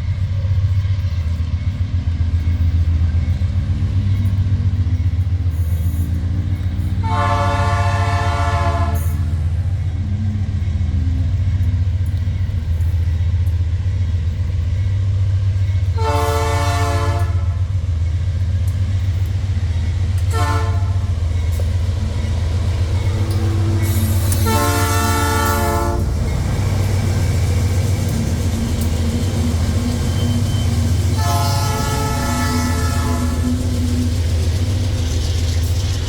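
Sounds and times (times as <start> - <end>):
diesel locomotive droning: 0.0 - 36.0
locomotive air horn blasts: 7.0 - 9.3, 16.0 - 17.6, 20.3 - 21.0, 23.4 - 26.1, 31.2 - 33.5.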